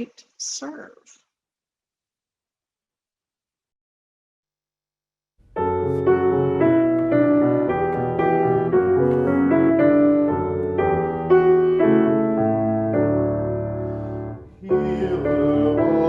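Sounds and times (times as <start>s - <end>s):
slow chordal piano piece: 5.4s - 16.0s.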